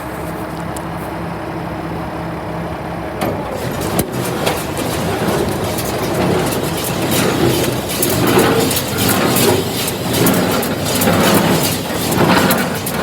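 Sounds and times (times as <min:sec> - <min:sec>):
sharp mechanical knocks and clatter: 0:03.2 - 0:13.0
engine idling: 0:03.3 - 0:13.0.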